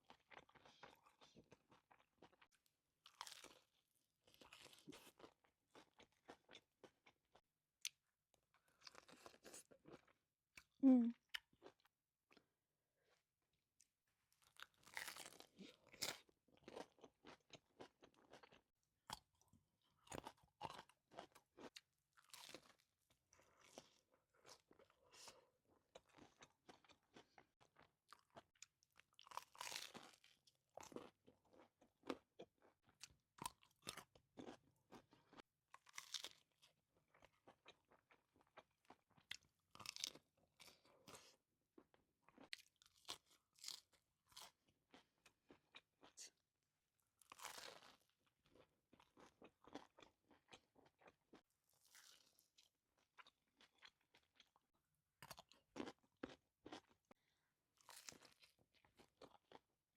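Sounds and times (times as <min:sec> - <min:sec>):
crunching toasted bread: 0:47.2 - 0:48.1.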